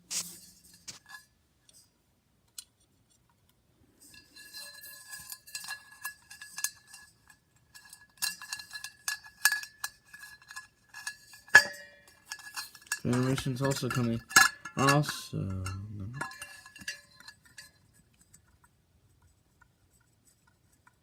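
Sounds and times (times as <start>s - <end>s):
light housing parts clinking: 4.0s - 18.7s.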